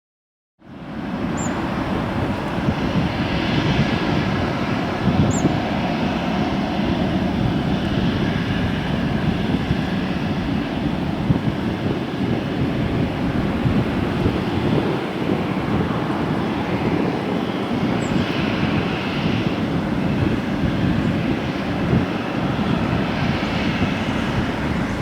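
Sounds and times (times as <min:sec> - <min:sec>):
jet engines rumbling: 0:00.7 - 0:25.0.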